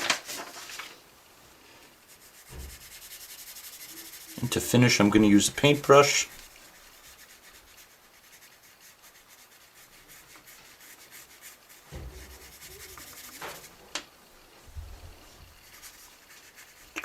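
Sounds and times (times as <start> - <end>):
paintbrush scratching on paper: 2.0 - 13.8, 15.5 - 17.0
soft bumps against paper: 2.4 - 2.9, 11.8 - 12.5.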